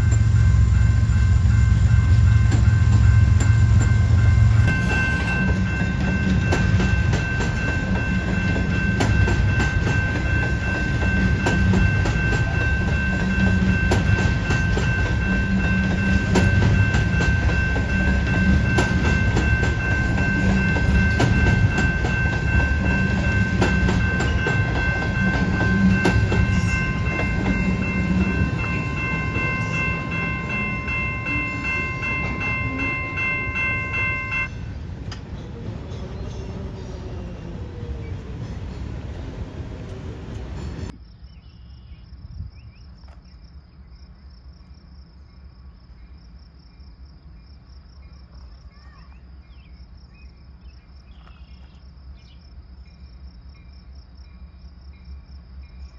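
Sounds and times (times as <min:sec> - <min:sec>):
high-pitched ringing tones: 0:00.0 - 0:34.8
diesel locomotive engine rumbling: 0:00.0 - 0:41.1
wheels clicking over rail joints: 0:01.8 - 0:35.9.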